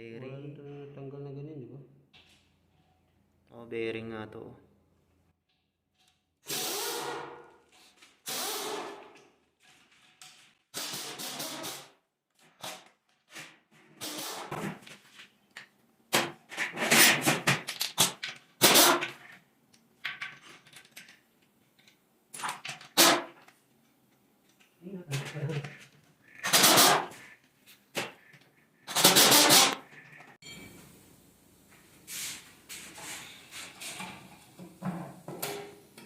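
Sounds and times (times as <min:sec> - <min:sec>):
short hissing bursts: 0:32.0 - 0:33.4.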